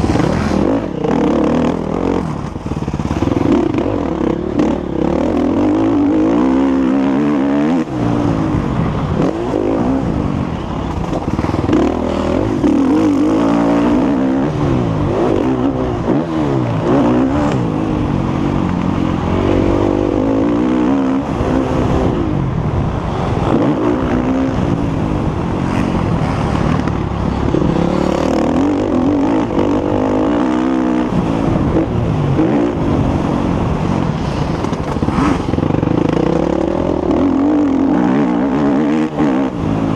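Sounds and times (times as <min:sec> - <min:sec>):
motocross bike engine revving: 0:00.0 - 0:22.3, 0:23.2 - 0:39.9.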